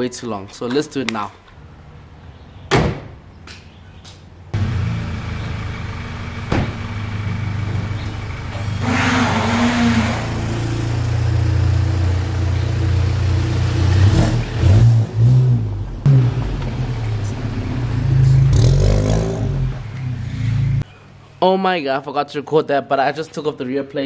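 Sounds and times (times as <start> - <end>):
car engine at low revs: 4.6 - 9.0, 9.9 - 20.8.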